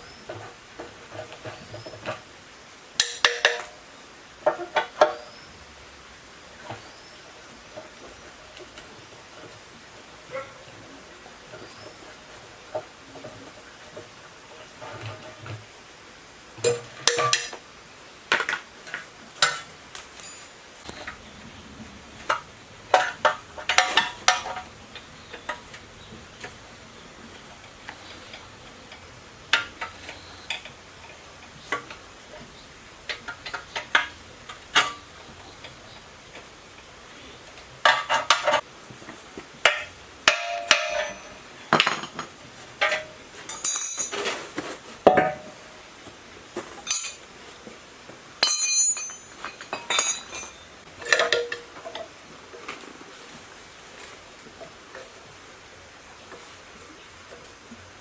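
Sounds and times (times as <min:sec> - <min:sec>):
metal tools clinking and knocking: 0:03.0 - 0:03.8, 0:16.7 - 0:17.6, 0:19.3 - 0:21.3, 0:22.2 - 0:26.6, 0:39.7 - 0:44.5, 0:46.8 - 0:47.3, 0:48.4 - 0:51.7.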